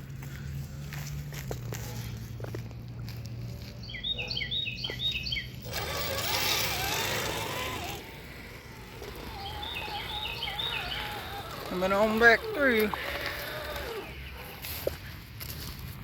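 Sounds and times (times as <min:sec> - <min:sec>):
electric motor whining: 0:05.5 - 0:14.9
bird trilling: 0:08.6 - 0:14.5.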